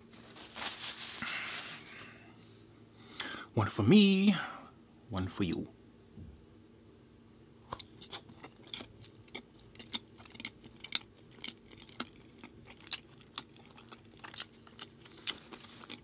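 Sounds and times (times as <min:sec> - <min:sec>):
person chewing food: 0:07.6 - 0:16.0.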